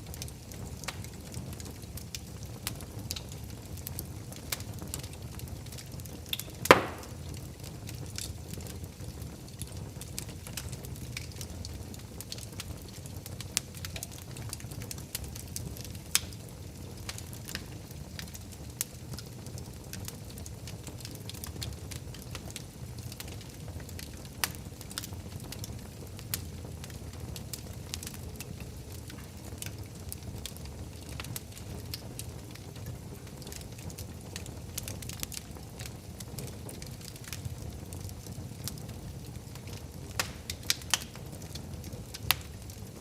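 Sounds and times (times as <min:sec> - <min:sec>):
wood fire crackling: 0:00.0 - 0:43.0
sharp fire pops: 0:06.2 - 0:08.7, 0:39.5 - 0:41.5.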